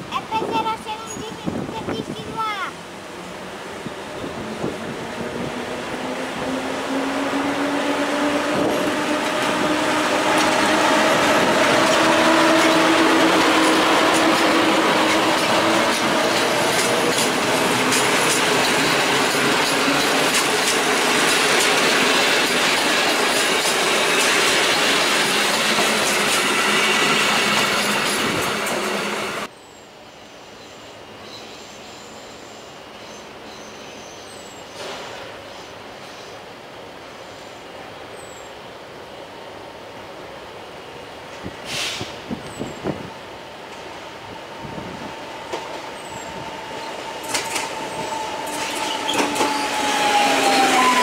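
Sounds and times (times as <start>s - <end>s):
electric locomotive motors whining: 3.0s - 29.5s, 42.2s - 51.0s
train wheels clattering over rail joints: 10.3s - 29.2s, 45.4s - 50.6s.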